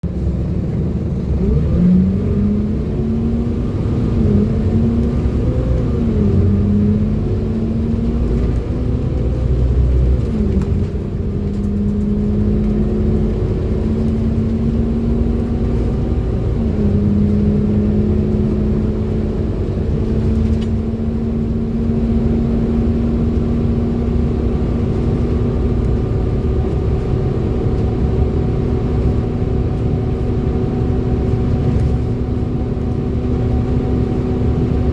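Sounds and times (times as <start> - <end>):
bus engine droning whine: 0.0 - 34.9.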